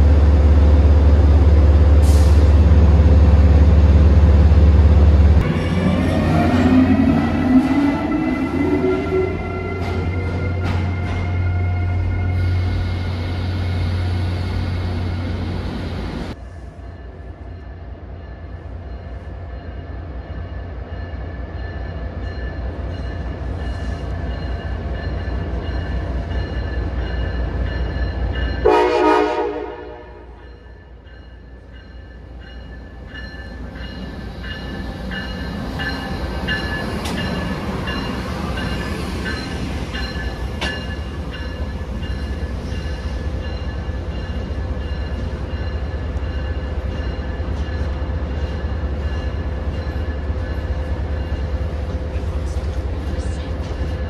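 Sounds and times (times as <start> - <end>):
locomotive humming: 0.0 - 54.0
train approaching with low rumble: 0.0 - 54.0
train horn blast: 28.6 - 30.4
wheel and rail noise: 30.5 - 54.0.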